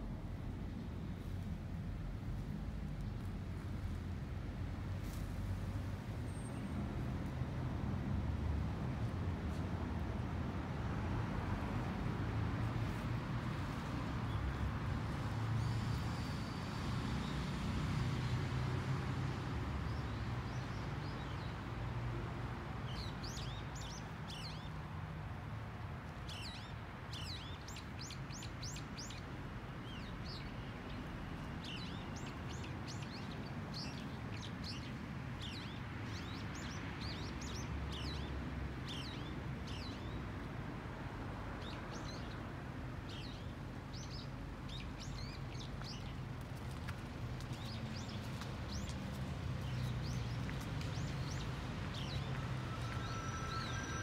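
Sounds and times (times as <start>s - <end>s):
small birds chirping: 43.1s - 53.9s.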